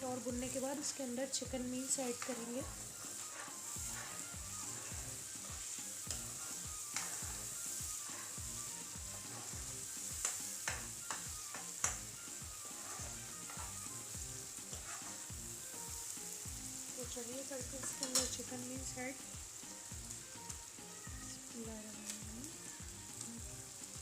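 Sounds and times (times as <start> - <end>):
paste sizzling in oil: 0.0 - 24.0
spoon scraping a pan: 0.5 - 18.7.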